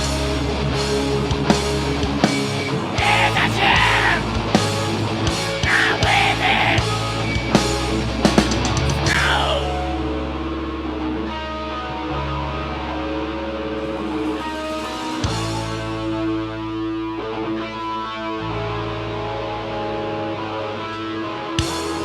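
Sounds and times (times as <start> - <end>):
hard-hit drums: 0.0 - 9.7
heavy metal band playing live: 0.0 - 22.0.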